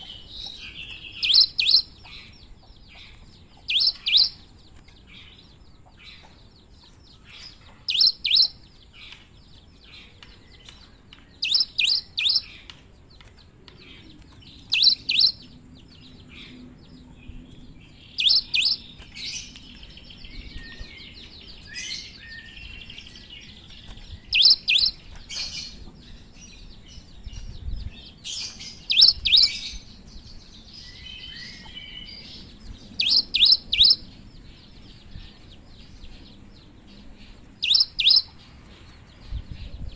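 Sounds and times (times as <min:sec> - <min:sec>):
bird singing sharp notes: 0:00.0 - 0:02.3, 0:03.6 - 0:04.5, 0:07.2 - 0:08.6, 0:10.0 - 0:12.7, 0:14.5 - 0:15.6, 0:30.8 - 0:34.1, 0:37.6 - 0:38.4
soft bird twittering: 0:00.0 - 0:39.9.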